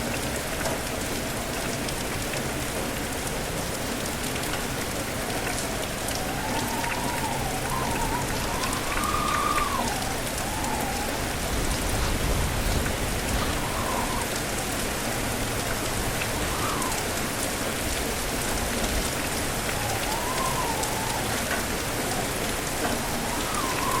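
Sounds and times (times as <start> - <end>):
raindrops hitting a surface: 0.0 - 24.0
steady rain: 0.0 - 24.0
wind gust whistling: 5.4 - 17.4, 18.1 - 24.0.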